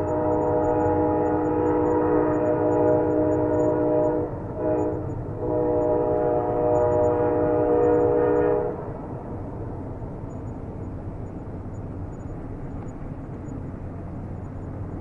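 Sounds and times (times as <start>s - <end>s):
train horn blasts: 0.0s - 9.0s
passing train rumble: 0.0s - 15.0s.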